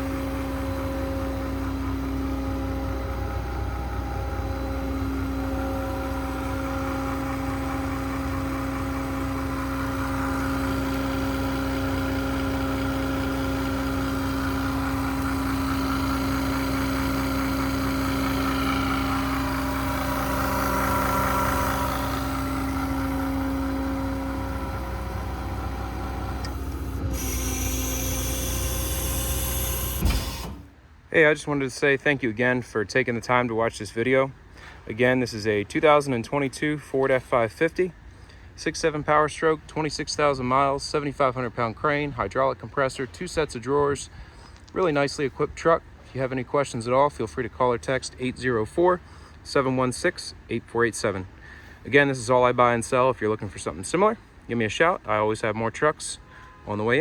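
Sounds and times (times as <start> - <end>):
diesel engine running: 0.0 - 30.7.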